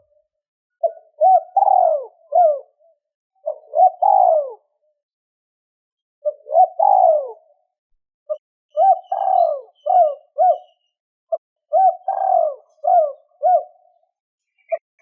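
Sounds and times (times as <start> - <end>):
dove cooing: 0.8 - 4.8, 6.2 - 7.6, 8.3 - 10.8, 11.7 - 14.0.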